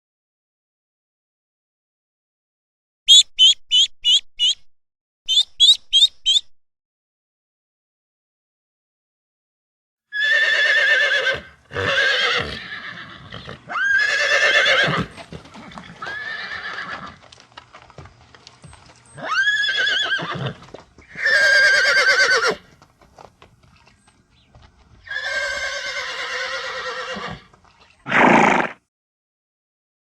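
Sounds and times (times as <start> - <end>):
horse whinnying: 10.1 - 17.2, 19.2 - 22.7, 25.0 - 28.8.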